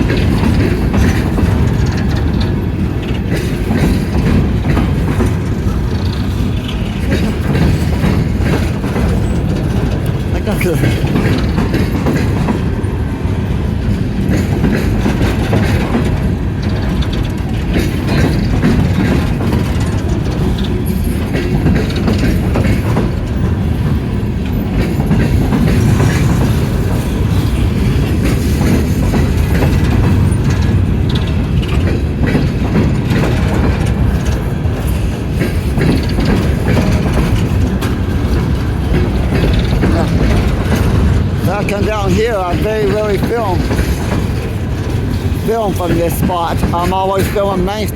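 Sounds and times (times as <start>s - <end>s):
train rolling past rumbling: 0.0s - 47.9s
wheels clacking over rail joints: 0.0s - 47.9s.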